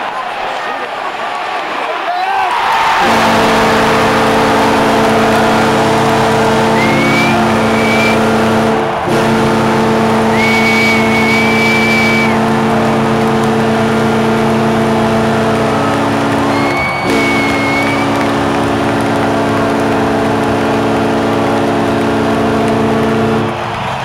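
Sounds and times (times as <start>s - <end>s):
crowd noise: 0.0s - 24.0s
goal horn blasts: 2.8s - 23.9s
high whistles: 6.6s - 8.2s, 10.2s - 12.4s, 16.4s - 18.3s.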